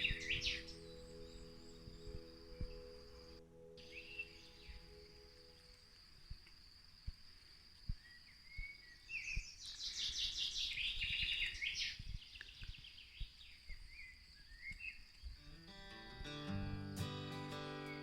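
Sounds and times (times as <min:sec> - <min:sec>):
bird chirps and trill: 0:00.0 - 0:05.6
high-pitched insect-like whine: 0:00.0 - 0:08.0.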